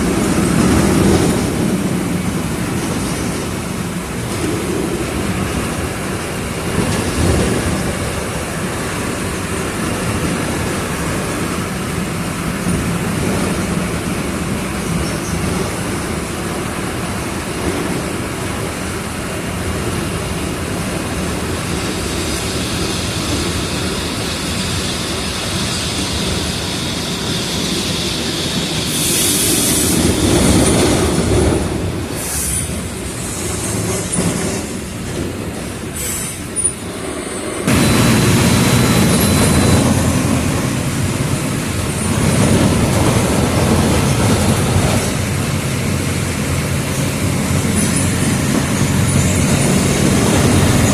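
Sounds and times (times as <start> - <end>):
air hiss: 22.2 - 30.3
bus diesel engine running: 37.7 - 50.9.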